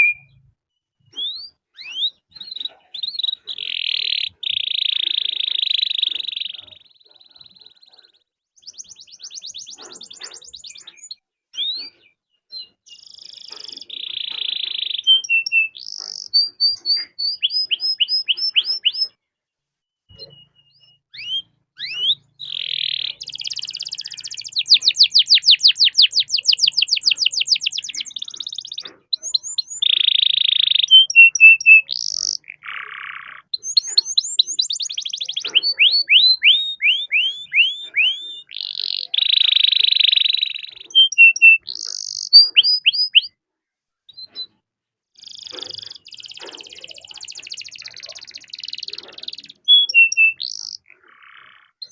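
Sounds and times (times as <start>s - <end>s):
canary singing: 0.0s - 19.2s, 20.1s - 43.4s, 45.2s - 51.9s.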